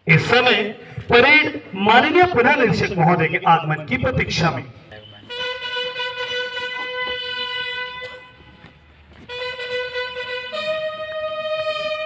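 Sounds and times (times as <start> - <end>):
bugle playing long notes: 5.2 - 12.0.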